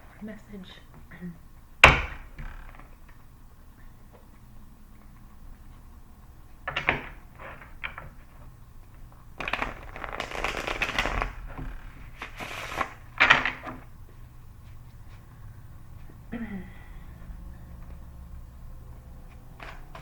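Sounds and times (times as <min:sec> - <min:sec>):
cards being shuffled: 0:09.0 - 0:13.9.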